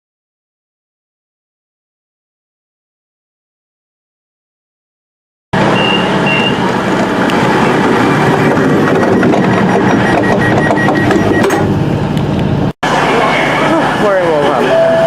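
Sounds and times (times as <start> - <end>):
passenger train rumbling: 5.6 - 15.0
short high beeps: 5.7 - 6.6, 8.8 - 11.6, 14.6 - 15.0
faint repeated beep: 5.8 - 6.6, 8.8 - 11.6.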